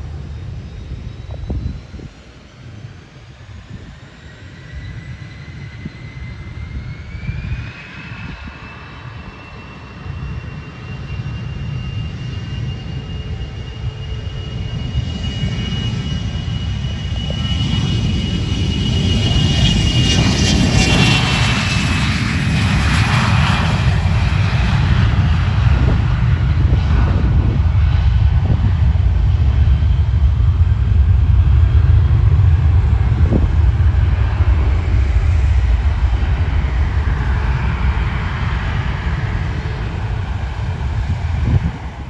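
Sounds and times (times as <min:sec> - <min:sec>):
aircraft engines rumbling: 0:00.0 - 0:42.0
falling engine whine: 0:00.0 - 0:42.0.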